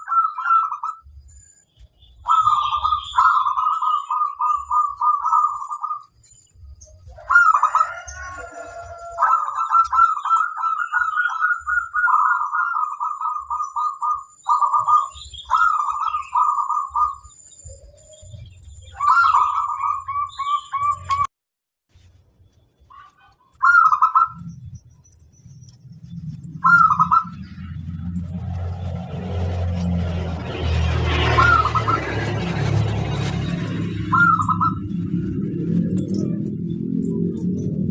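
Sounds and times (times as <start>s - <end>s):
dove cooing: 0.0s - 1.0s, 2.2s - 6.1s, 7.1s - 21.3s, 23.6s - 24.5s, 26.6s - 28.0s, 31.2s - 32.4s, 34.0s - 37.9s
low hum: 24.3s - 37.9s.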